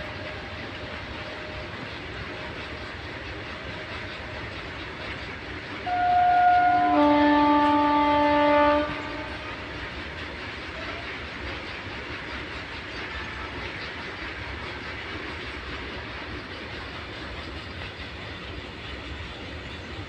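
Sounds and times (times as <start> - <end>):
train rumbling: 0.0 - 20.0
locomotive horn: 5.8 - 9.6.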